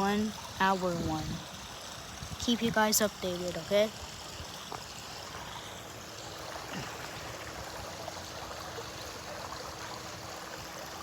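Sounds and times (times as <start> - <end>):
wind blowing: 0.0 - 3.0.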